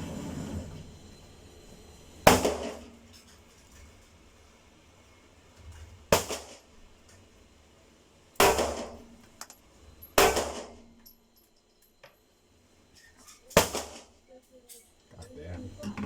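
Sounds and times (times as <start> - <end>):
gunshots with ringing echo: 2.3 - 2.9, 8.4 - 9.0, 10.2 - 10.8.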